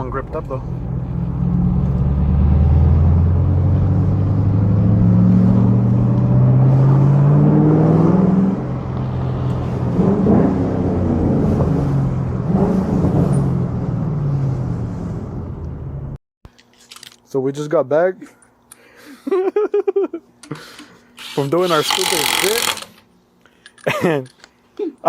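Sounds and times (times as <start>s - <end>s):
car exhaust accelerating: 0.0s - 16.2s.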